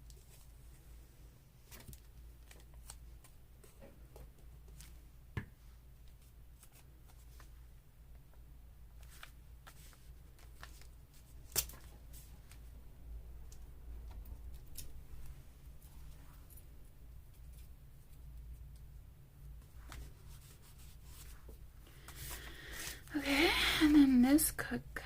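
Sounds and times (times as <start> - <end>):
paper and tape rustling: 9.0 - 12.7.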